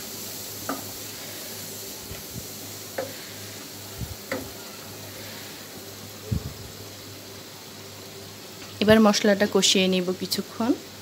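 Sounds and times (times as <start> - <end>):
paste sizzling in oil: 0.0 - 11.0.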